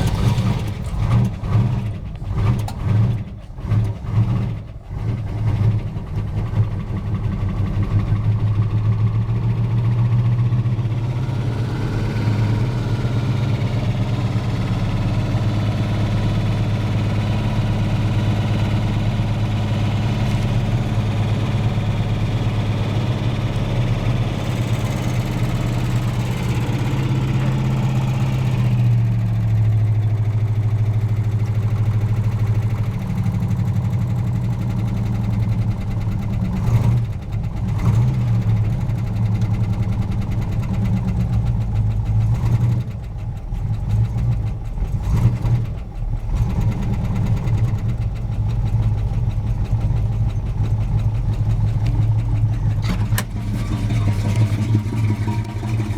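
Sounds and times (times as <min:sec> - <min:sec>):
car engine idling: 0:00.0 - 0:10.9, 0:12.6 - 0:55.9.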